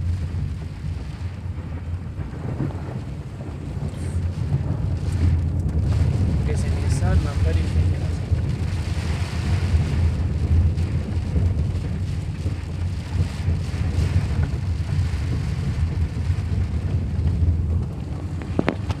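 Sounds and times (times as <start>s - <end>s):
car engine and road rumble: 0.0s - 19.0s
rain hiss: 0.0s - 19.0s.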